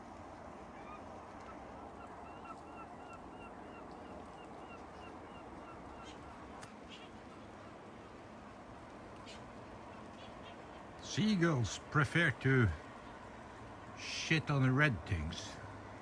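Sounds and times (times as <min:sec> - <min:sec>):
seagulls calling: 0:00.7 - 0:07.7.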